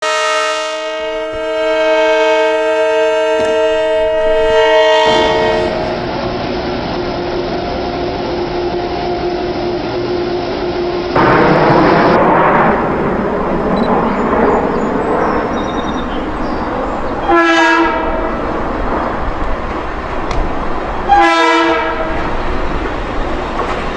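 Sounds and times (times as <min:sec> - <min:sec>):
locomotive air horn chord: 0:00.0 - 0:06.1, 0:16.0 - 0:18.4, 0:21.0 - 0:22.3
train running past: 0:00.0 - 0:23.9.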